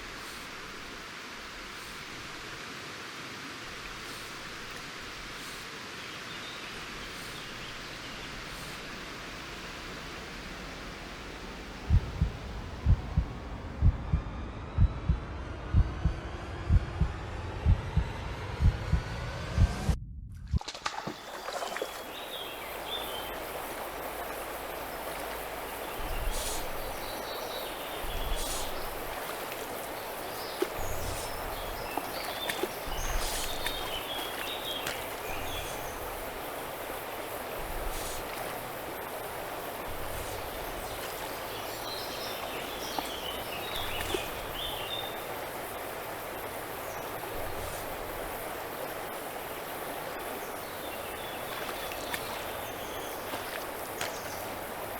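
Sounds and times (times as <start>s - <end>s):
small birds chirping: 3.9s - 9.1s, 21.0s - 54.9s
river rushing: 20.9s - 54.9s.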